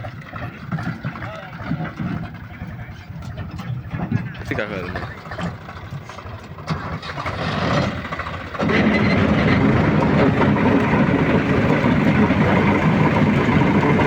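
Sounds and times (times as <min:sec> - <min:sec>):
diesel engine running: 0:01.6 - 0:14.0.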